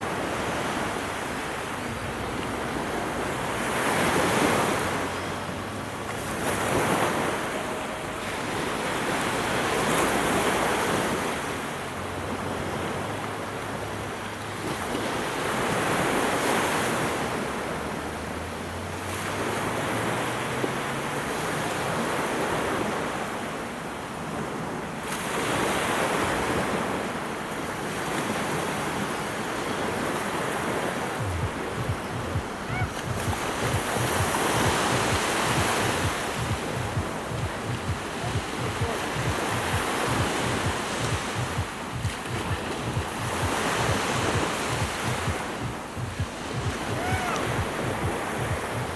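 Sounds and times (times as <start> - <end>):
surf washing ashore: 0.0 - 48.9
wind buffeting microphone: 31.2 - 48.9.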